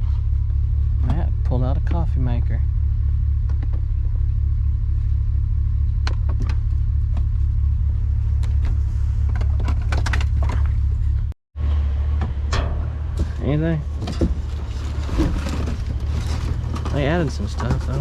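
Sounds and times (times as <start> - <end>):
truck engine rumbling: 0.0 - 18.0
sharp clicks and rattles: 8.4 - 10.9, 14.0 - 18.0.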